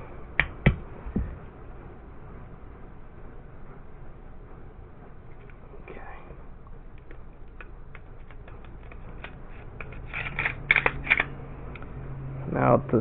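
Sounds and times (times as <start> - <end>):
pistol mechanical clicks: 7.0 - 11.9.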